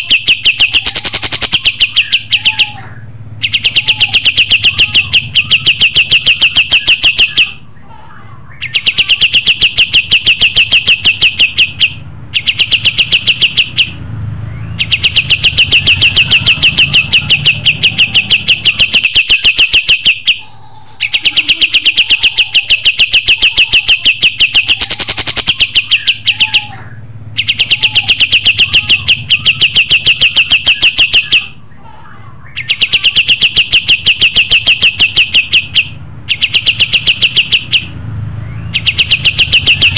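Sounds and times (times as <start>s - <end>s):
songbird rapid high chirping: 0.0s - 7.6s, 8.5s - 20.4s, 21.0s - 31.6s, 32.5s - 39.9s.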